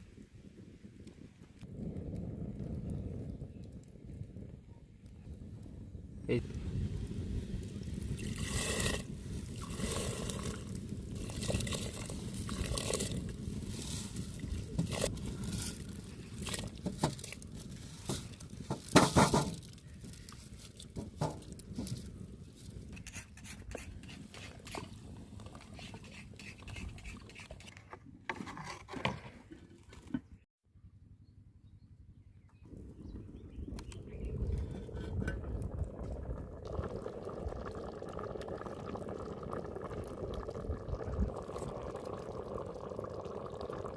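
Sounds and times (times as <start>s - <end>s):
knocks and scrapes of handwork: 25.6s - 30.4s.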